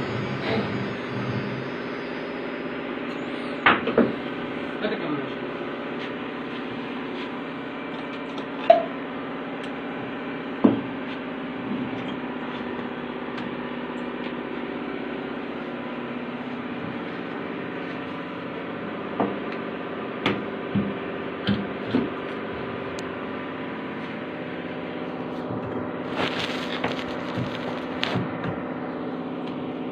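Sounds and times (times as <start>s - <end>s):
cnc router humming: 0.0s - 29.9s
sharp clicks and knocks: 25.4s - 28.6s.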